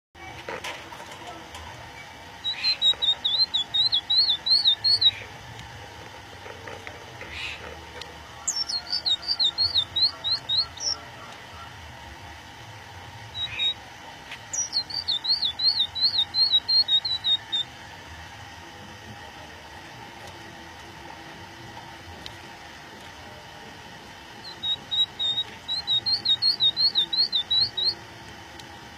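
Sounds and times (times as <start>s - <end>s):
budgerigar chirping: 2.4s - 5.2s, 8.5s - 11.3s, 13.4s - 13.8s, 14.5s - 17.7s, 24.4s - 28.0s.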